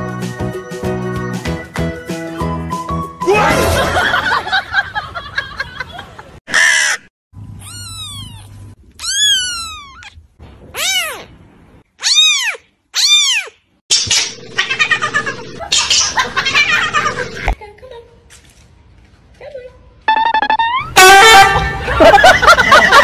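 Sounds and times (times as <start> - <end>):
kitten meowing: 7.6 - 11.3, 12.0 - 13.6
kitten wavering cry: 7.6 - 11.3, 12.0 - 13.6.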